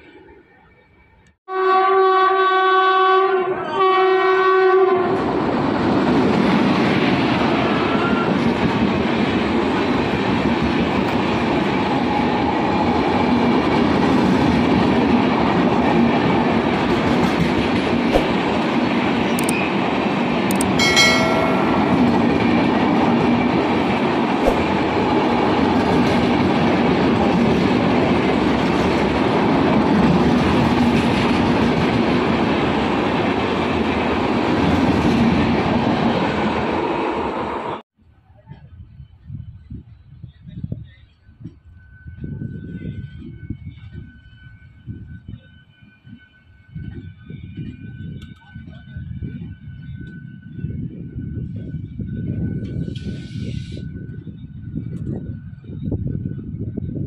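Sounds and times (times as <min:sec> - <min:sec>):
train horn blasts: 0:01.5 - 0:05.3
wheels rushing on rail: 0:04.2 - 0:37.8, 0:38.7 - 0:57.0.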